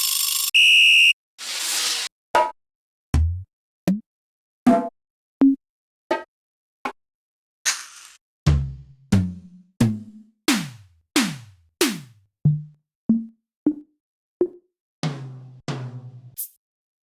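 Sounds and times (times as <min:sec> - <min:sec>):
bright crisp drum hit: 0:10.5 - 0:12.1
deep bass drum hits: 0:10.5 - 0:12.1
short pitched drum hits: 0:10.5 - 0:12.1.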